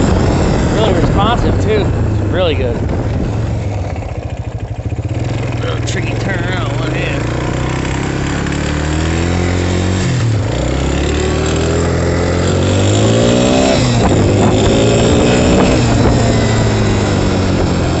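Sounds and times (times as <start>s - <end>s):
quad engine accelerating: 0.0s - 18.0s.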